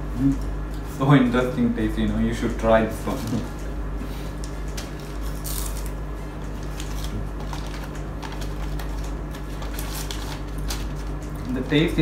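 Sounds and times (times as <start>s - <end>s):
steady low hum: 0.0s - 12.0s
chewing crisp snack crunches: 4.7s - 11.6s
plastic snack packet handled: 6.6s - 11.7s.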